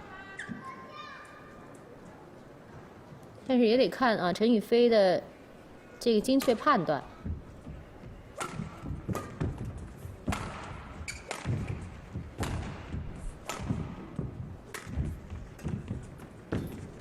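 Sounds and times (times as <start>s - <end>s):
footsteps thudding on court: 7.2s - 17.0s
racket hitting shuttlecock: 8.3s - 16.8s.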